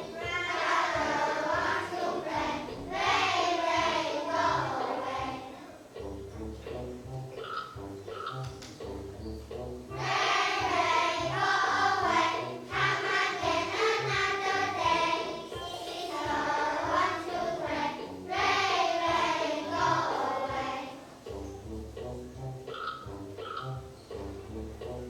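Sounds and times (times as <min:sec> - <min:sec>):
children singing together: 0:00.0 - 0:05.9, 0:09.9 - 0:21.3
musical accompaniment: 0:00.0 - 0:25.0.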